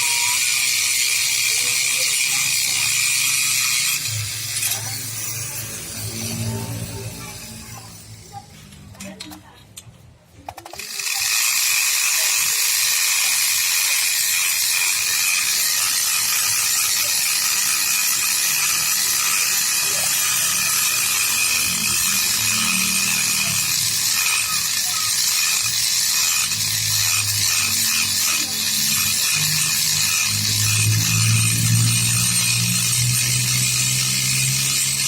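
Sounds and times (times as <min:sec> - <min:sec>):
thin whine: 0:00.0 - 0:08.5, 0:15.8 - 0:35.0
machine grinding metal: 0:00.0 - 0:09.2, 0:10.7 - 0:35.0.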